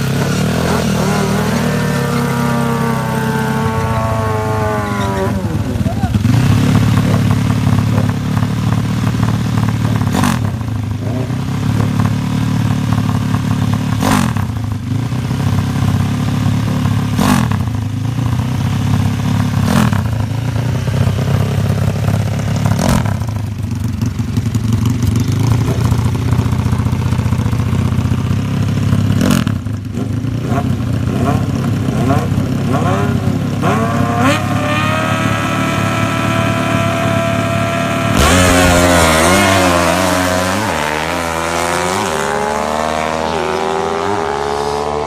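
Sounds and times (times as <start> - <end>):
motorcycle engine idling: 5.6 - 31.9.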